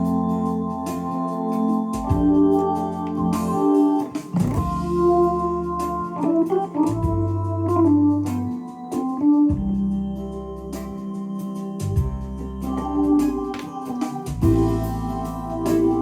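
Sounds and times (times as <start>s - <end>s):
bass line: 0.0s - 1.2s, 2.0s - 3.8s, 4.4s - 8.5s, 9.5s - 11.0s, 11.8s - 13.6s, 14.3s - 16.0s
held organ chords: 0.0s - 16.0s
drum hits: 2.0s - 2.5s, 3.1s - 5.1s, 6.9s - 7.4s, 11.8s - 15.1s.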